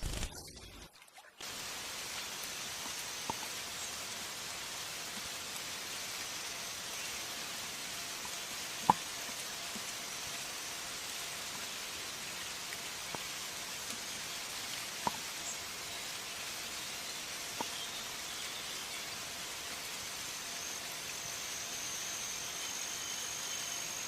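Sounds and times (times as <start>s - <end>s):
steady rain-like hiss: 1.4s - 24.0s
sharp drip-like clicks: 2.1s - 4.1s, 8.2s - 10.4s, 11.8s - 16.7s, 17.5s - 19.8s.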